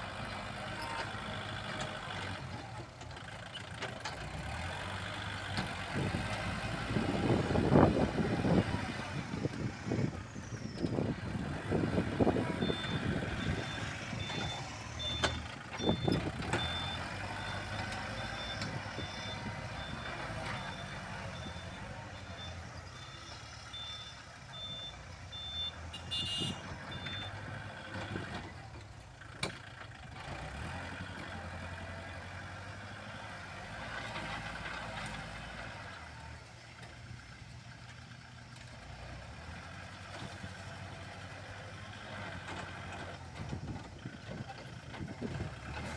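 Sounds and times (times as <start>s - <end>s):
heavy machinery engine running: 0.0s - 25.9s, 26.6s - 45.9s
reversing alarm beeping: 12.5s - 27.4s.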